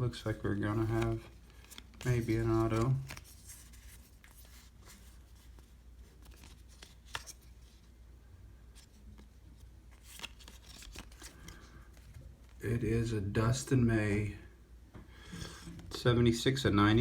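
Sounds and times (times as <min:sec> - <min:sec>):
cards sliding and rubbing: 0:00.7 - 0:07.9, 0:08.8 - 0:12.6.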